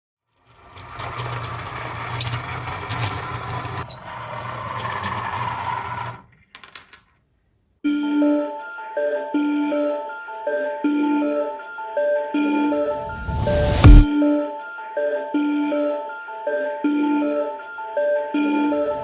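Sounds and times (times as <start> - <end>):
music with bell-like tones: 7.9 - 13.4, 14.0 - 19.0.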